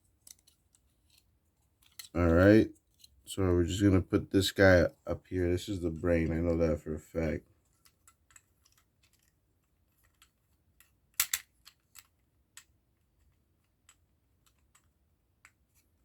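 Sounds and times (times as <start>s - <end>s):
plastic parts clicking and tapping: 0.0s - 2.2s, 7.7s - 16.0s.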